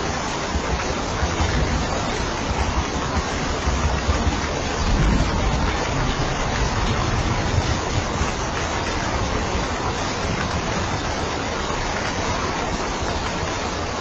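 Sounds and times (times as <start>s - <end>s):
heavy rain hissing: 0.0s - 14.0s
low rumble: 2.4s - 11.0s.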